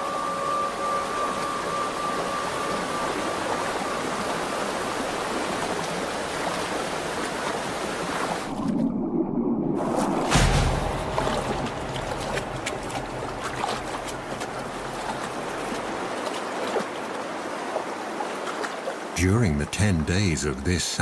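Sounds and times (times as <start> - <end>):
creek water running over stones: 0.0 - 8.6, 10.3 - 20.4
sudden loud thump: 10.1 - 13.8.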